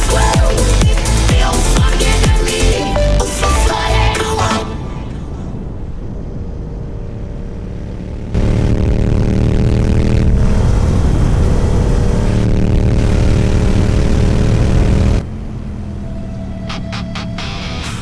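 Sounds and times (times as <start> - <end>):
motorcycle engine accelerating: 5.2 - 18.0.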